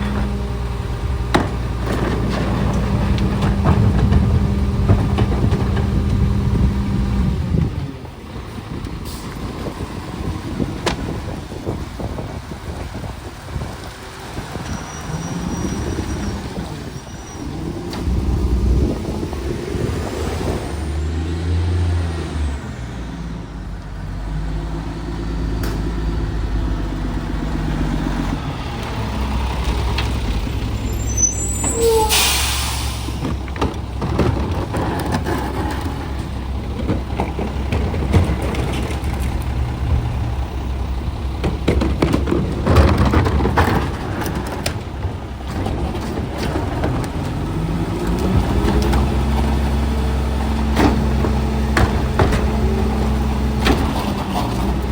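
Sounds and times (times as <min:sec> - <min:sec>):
diesel truck engine running: 0:00.0 - 0:54.9
air brakes hissing: 0:30.8 - 0:33.4.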